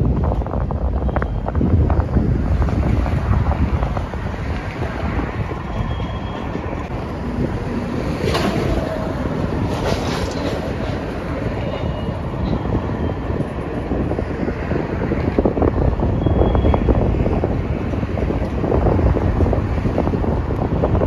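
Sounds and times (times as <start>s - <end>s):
freight train rolling past: 0.0s - 21.0s
steel wheels clicking over rails: 3.9s - 12.6s.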